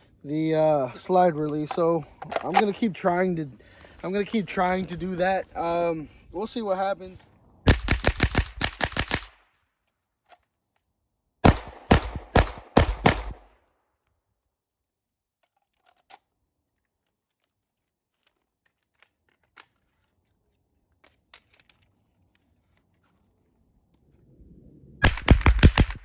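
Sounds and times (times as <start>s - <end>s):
suppressed gunshots: 11.4s - 13.5s, 25.0s - 26.0s.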